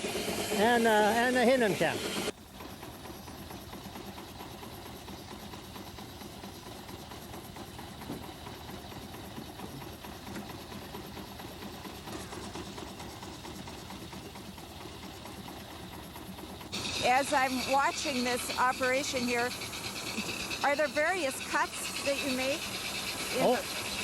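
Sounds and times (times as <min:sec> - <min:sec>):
steam-driven sawmill running: 0:00.0 - 0:24.0.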